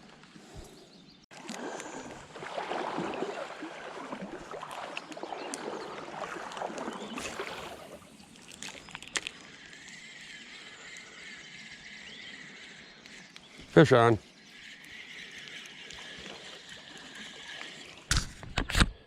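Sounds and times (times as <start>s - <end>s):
creek water sloshing and splashing: 1.3s - 9.5s.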